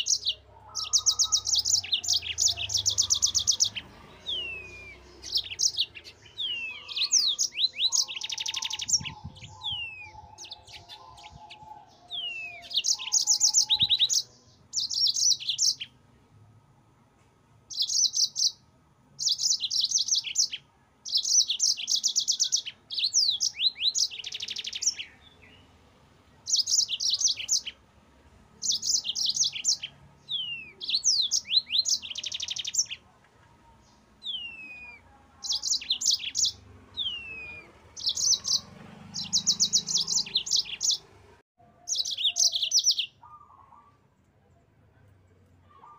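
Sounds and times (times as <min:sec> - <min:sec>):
canary singing trills and whistles: 0:00.0 - 0:16.0, 0:17.7 - 0:18.6, 0:19.2 - 0:25.8, 0:26.4 - 0:27.8, 0:28.6 - 0:33.1, 0:33.9 - 0:41.1, 0:41.8 - 0:44.0.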